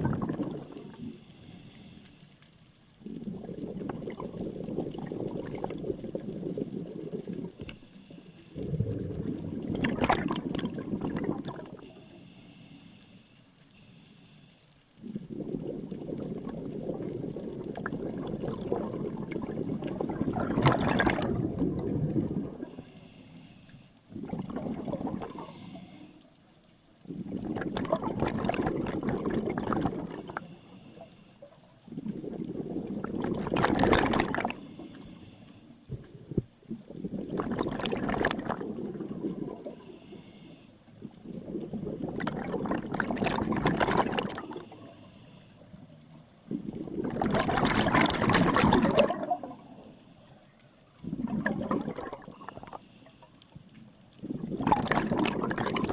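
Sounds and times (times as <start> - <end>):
exhaled bubbles rumbling: 0.0 - 1.3, 3.0 - 11.9, 15.0 - 22.9, 24.1 - 25.6, 26.9 - 30.4, 31.8 - 34.7, 35.9 - 40.0, 40.9 - 44.9, 45.7 - 49.9, 50.9 - 52.8, 53.7 - 55.9
regulator hiss: 1.0 - 2.6, 11.8 - 14.8, 22.7 - 24.0, 25.3 - 26.3, 34.5 - 36.5, 39.8 - 40.9, 44.5 - 45.8.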